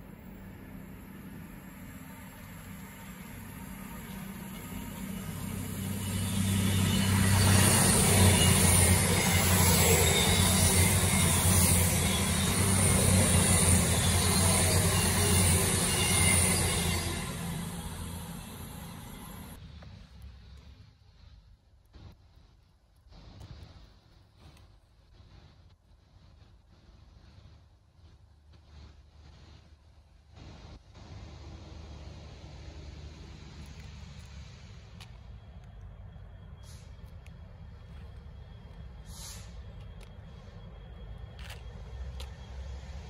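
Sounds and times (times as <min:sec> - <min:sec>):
train engines humming: 0:00.0 - 0:43.0
train wheels hissing on rails: 0:00.0 - 0:43.0.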